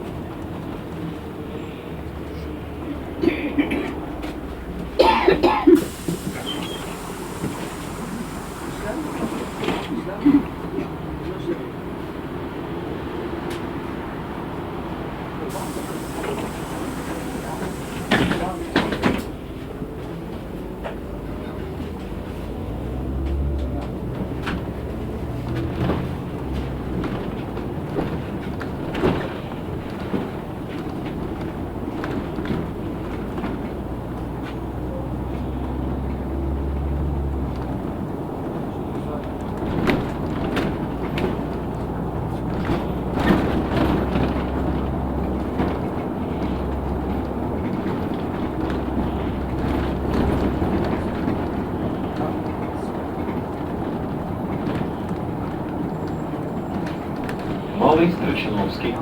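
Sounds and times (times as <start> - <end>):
bus body rattling and knocking: 0.0 - 59.0
bus engine droning: 0.0 - 59.0.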